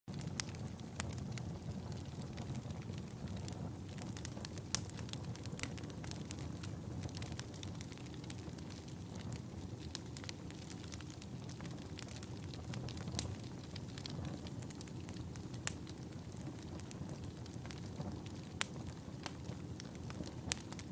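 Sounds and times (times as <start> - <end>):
low rumble of burning logs: 0.1 - 20.9
wood fire crackling: 0.1 - 20.9.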